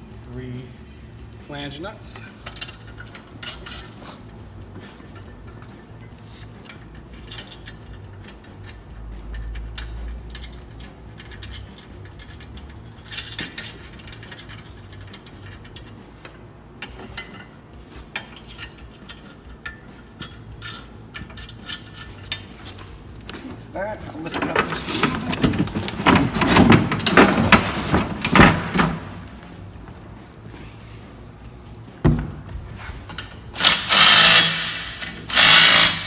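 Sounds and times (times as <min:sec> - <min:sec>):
metal nuts clinking: 0:02.1 - 0:04.4, 0:05.0 - 0:29.7, 0:33.0 - 0:36.0
wrench tightening nuts: 0:02.2 - 0:23.4, 0:33.1 - 0:36.0.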